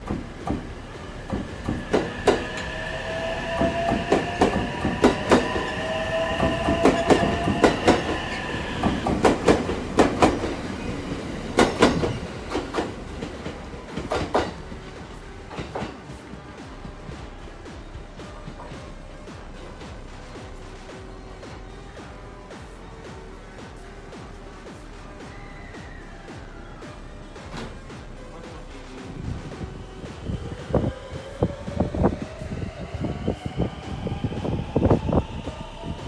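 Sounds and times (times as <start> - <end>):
train wheels clacking over rail joints: 0.0 - 16.4
train whine: 0.0 - 19.5, 25.1 - 36.0.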